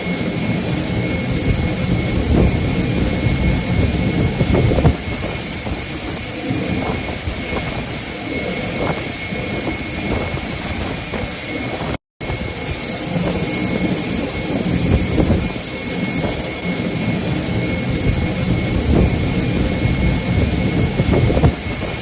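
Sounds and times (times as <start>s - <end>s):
high whine: 0.0s - 22.0s
vehicle rumbling: 0.5s - 7.2s, 17.0s - 22.0s.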